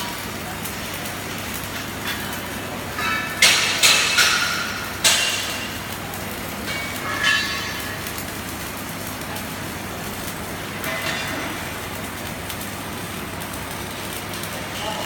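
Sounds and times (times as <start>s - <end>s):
workshop hum: 0.0s - 15.0s
metal clanking on metal: 1.8s - 8.3s, 10.8s - 11.7s.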